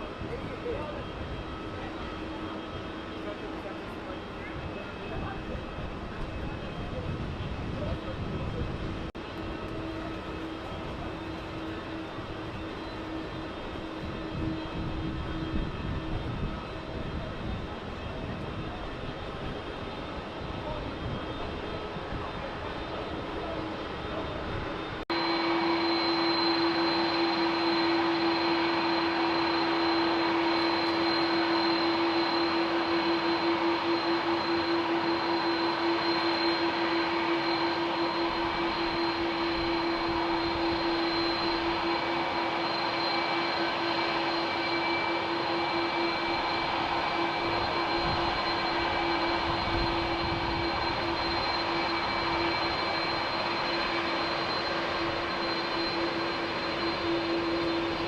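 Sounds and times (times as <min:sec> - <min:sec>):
high engine whine: 0:00.0 - 0:58.0
jet engines running: 0:00.0 - 0:58.0.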